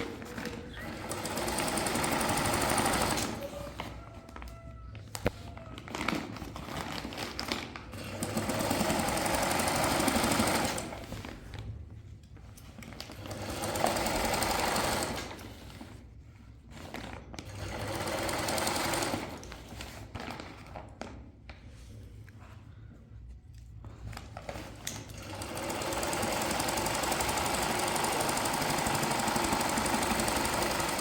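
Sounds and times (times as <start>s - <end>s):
sewing machine stitching: 0.0s - 3.8s, 7.9s - 11.2s, 13.1s - 15.7s, 16.8s - 19.7s, 24.7s - 31.0s.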